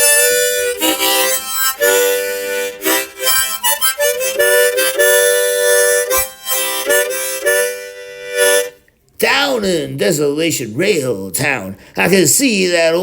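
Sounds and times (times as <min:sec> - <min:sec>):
harmonica chords: 0:00.0 - 0:08.8.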